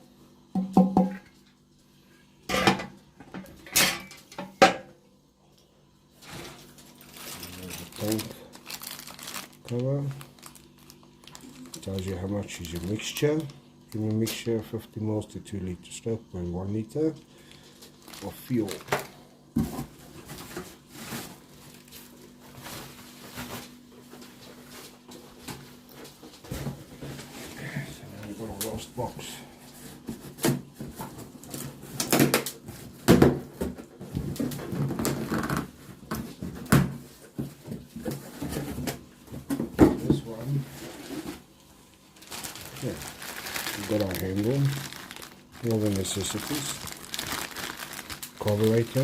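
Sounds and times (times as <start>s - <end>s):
packaging rustling: 6.5s - 14.6s, 17.4s - 19.2s, 19.8s - 25.0s, 40.3s - 49.0s.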